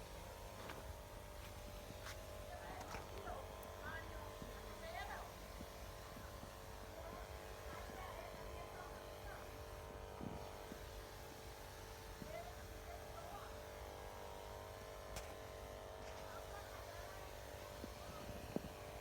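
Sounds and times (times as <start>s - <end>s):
faint distant voices: 12.0s - 19.0s.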